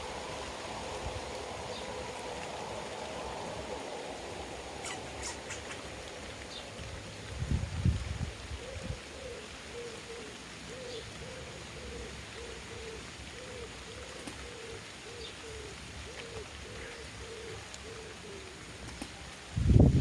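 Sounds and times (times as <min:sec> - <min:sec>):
dove cooing: 0:04.6 - 0:06.3, 0:08.4 - 0:19.4
faint high bird chirps: 0:04.8 - 0:05.9.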